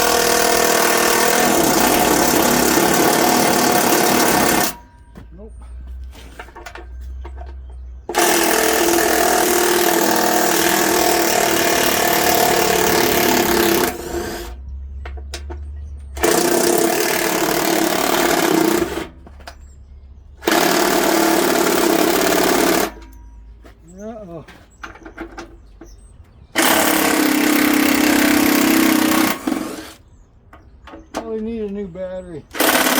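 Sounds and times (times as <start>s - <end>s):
cordless power driver running: 0.0s - 4.8s, 8.1s - 14.6s, 16.2s - 19.1s, 20.4s - 23.0s, 26.6s - 30.0s, 32.5s - 32.9s.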